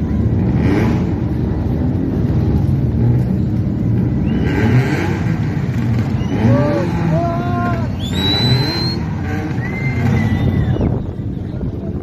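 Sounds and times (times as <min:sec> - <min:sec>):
car engines running: 0:00.0 - 0:12.0.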